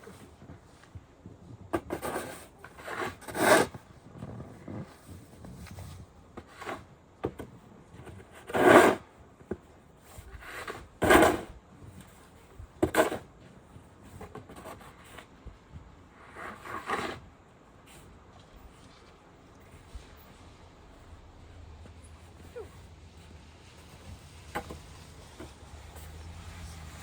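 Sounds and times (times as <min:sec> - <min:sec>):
snow shovel scraping: 0:01.8 - 0:03.8, 0:08.4 - 0:09.0, 0:10.3 - 0:11.5, 0:16.2 - 0:17.2, 0:22.0 - 0:27.0.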